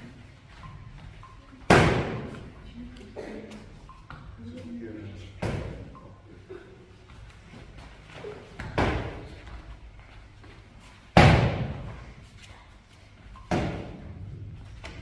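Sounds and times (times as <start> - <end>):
loud sharp slams: 1.7 - 2.3, 11.1 - 11.9.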